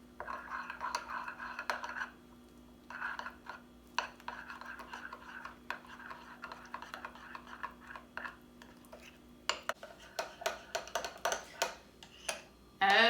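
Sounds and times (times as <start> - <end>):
utensil scraping bowl: 0.2 - 2.2, 2.8 - 12.5
utensil clinking against bowl: 8.9 - 12.5.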